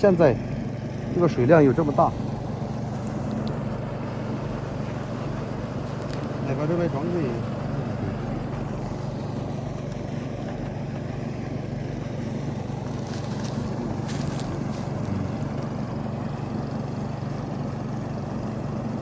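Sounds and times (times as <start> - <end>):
electric motor humming: 0.0 - 19.0.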